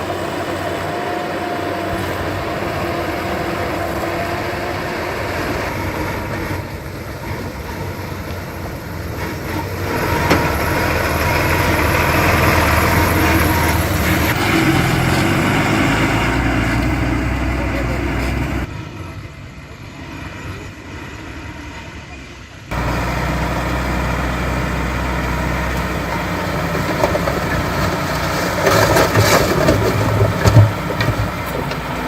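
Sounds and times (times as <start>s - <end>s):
heavy machinery running: 0.0s - 32.0s.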